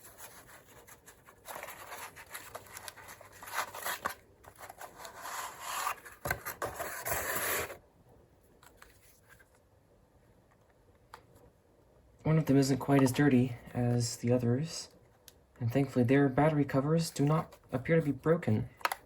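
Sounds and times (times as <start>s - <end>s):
plastic packaging rubbing and scraping: 0.0s - 7.8s.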